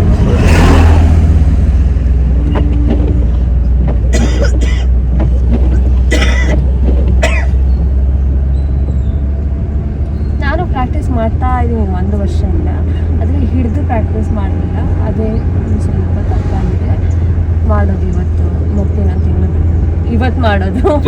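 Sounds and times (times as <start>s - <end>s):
car engine rumble: 0.0s - 21.0s
road noise inside car: 0.0s - 21.0s
person coughing: 4.1s - 4.9s, 6.1s - 6.6s, 7.2s - 7.6s.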